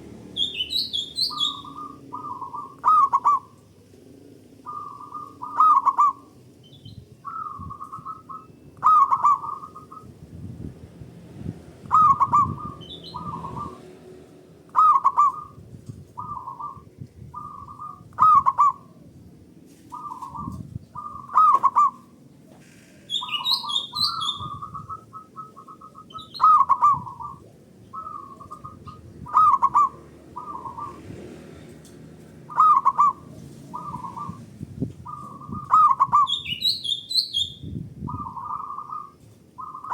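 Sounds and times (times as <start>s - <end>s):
doves cooing: 0.0s - 6.5s, 7.2s - 10.2s, 11.8s - 14.1s, 14.7s - 19.1s, 19.9s - 36.7s, 38.0s - 39.9s
small bird twittering: 0.3s - 3.5s, 11.9s - 13.8s, 19.9s - 31.0s, 35.0s - 39.9s.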